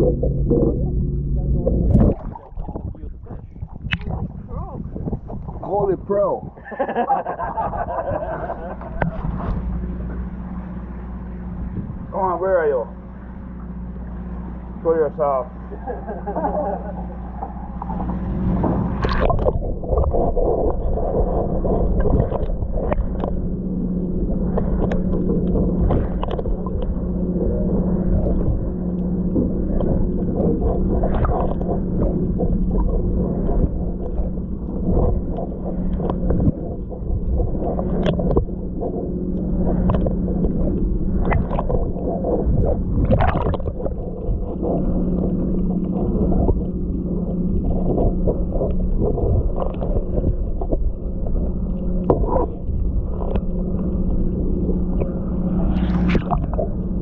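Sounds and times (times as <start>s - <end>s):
low machine hum: 0.0s - 57.0s
water slapping against boat hulls: 0.0s - 57.0s
small knocks and splashes: 43.0s - 44.5s.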